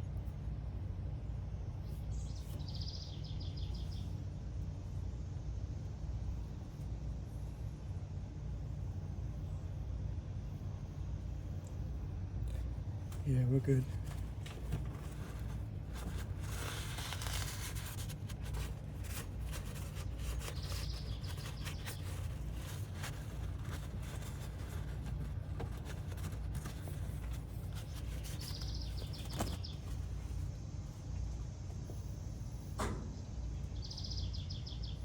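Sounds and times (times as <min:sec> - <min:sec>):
low background hum: 0:00.0 - 0:35.0
bird chirping: 0:02.1 - 0:04.1, 0:18.4 - 0:24.8, 0:27.2 - 0:30.1, 0:33.7 - 0:35.0.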